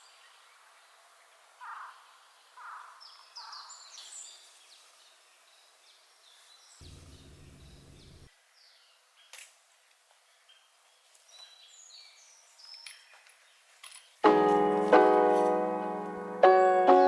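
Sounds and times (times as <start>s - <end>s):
low hum: 6.8s - 8.3s
wild birds chirping: 6.8s - 8.3s.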